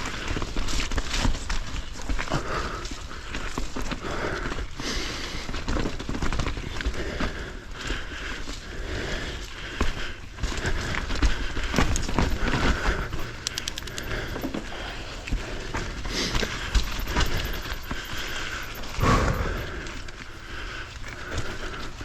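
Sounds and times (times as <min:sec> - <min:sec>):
bike clattering and ticking: 0:10.4 - 0:22.0.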